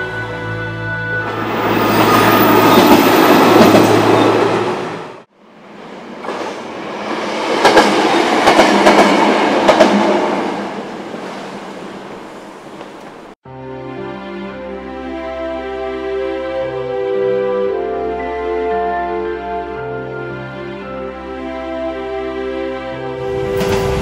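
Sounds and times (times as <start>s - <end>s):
diesel railcar passing: 0.0s - 13.4s, 21.8s - 24.0s
train passing: 0.4s - 13.4s, 23.0s - 24.0s.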